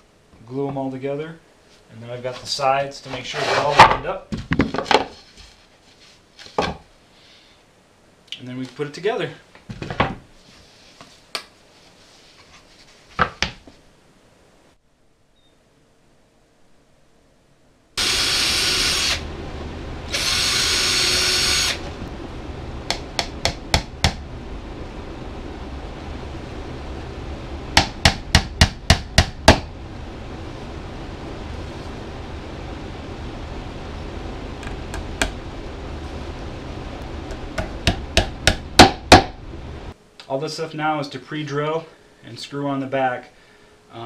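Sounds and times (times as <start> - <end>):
steady low hum: 5.0 - 44.0
power tool running: 18.0 - 24.4.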